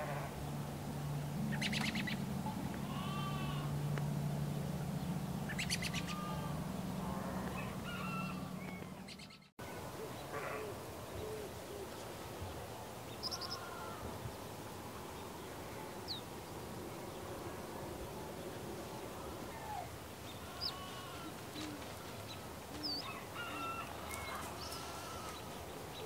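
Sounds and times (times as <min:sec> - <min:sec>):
birds chirping and calling: 0:01.5 - 0:02.3, 0:05.0 - 0:11.9, 0:13.1 - 0:14.0, 0:19.6 - 0:26.0.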